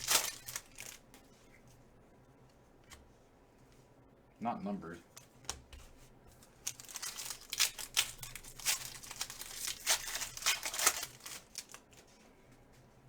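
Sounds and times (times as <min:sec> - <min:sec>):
wrapper tearing and crinkling: 0:00.0 - 0:01.1, 0:06.6 - 0:12.0.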